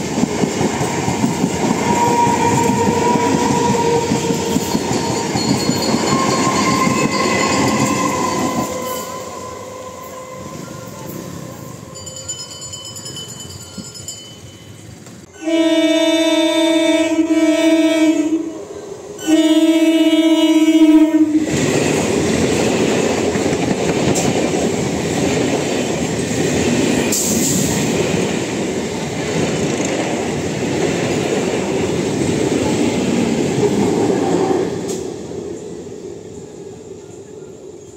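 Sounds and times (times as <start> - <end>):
train passing with wheel noise: 0.0 - 37.9
train horn blasts: 1.8 - 5.5, 6.1 - 12.0, 15.3 - 21.6.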